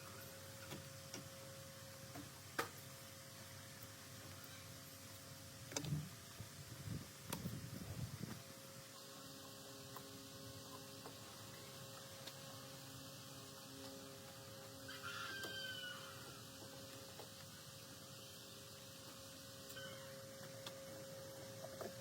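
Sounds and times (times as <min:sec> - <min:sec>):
faint steady hum: 0:00.0 - 0:22.0
rooster crowing: 0:14.9 - 0:16.5.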